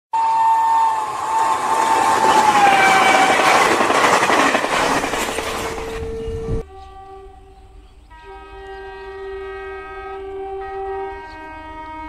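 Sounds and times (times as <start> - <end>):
train whining tone: 0.1 - 12.0
train wheels clattering on rails: 1.1 - 6.4.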